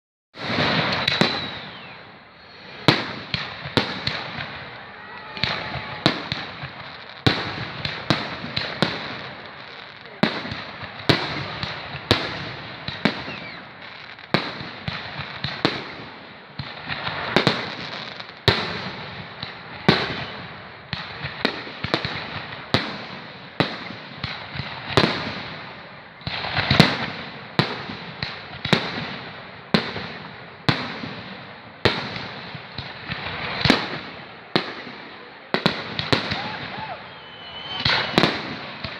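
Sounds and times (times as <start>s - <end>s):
firework shell bursts echoing: 0.4s - 9.4s, 35.8s - 38.9s.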